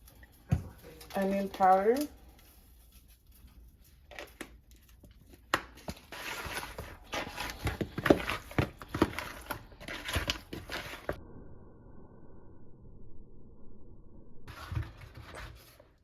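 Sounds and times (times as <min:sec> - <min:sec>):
crinkling and rustling: 0:00.0 - 0:11.2, 0:14.5 - 0:16.0.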